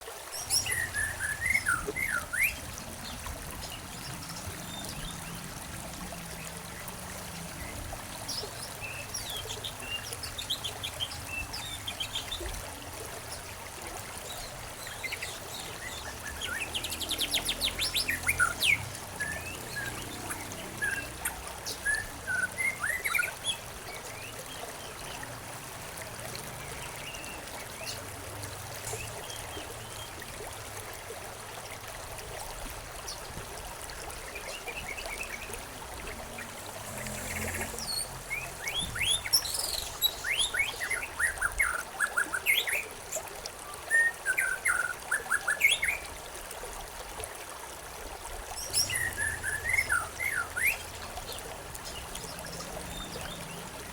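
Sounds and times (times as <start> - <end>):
stream water trickling: 0.0 - 53.9
songbirds chirping: 0.3 - 25.5, 33.1 - 46.2, 48.6 - 53.9.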